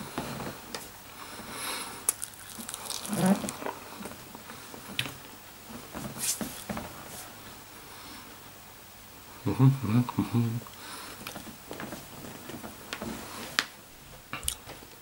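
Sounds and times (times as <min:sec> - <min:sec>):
person chewing chicken wing: 0:02.1 - 0:03.8.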